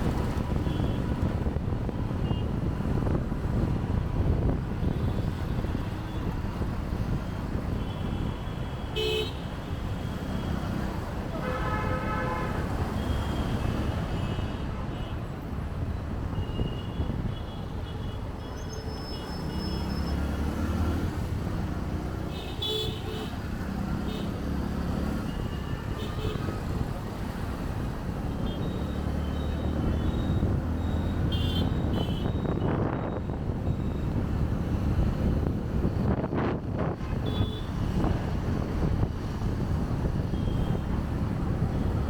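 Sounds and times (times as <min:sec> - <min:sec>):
motorbike engine and road noise: 0:00.0 - 0:42.0
vehicle horn toots: 0:11.4 - 0:14.4, 0:31.2 - 0:32.8.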